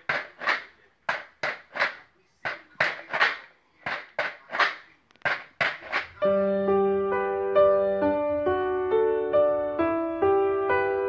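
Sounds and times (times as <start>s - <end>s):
pasta shaker rattling: 2.7s - 6.2s.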